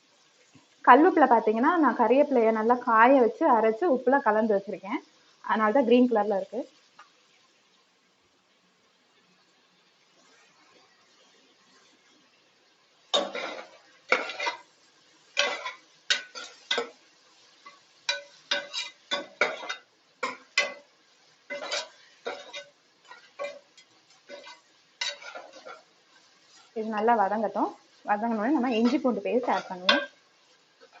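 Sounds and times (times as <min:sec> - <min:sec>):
onions frying in oil: 0:00.0 - 0:31.0
ladle scraping a pot: 0:13.2 - 0:14.7, 0:18.1 - 0:19.8, 0:21.5 - 0:25.8.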